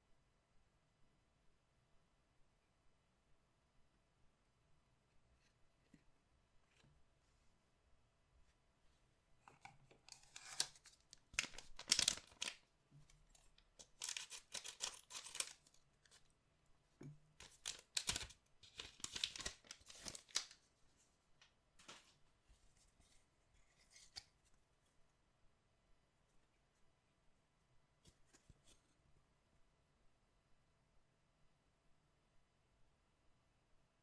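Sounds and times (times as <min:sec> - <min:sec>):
soft paper rustles: 0:09.4 - 0:16.4, 0:17.4 - 0:25.0, 0:28.0 - 0:29.0
cardboard packaging tearing: 0:10.1 - 0:12.6, 0:13.8 - 0:15.7.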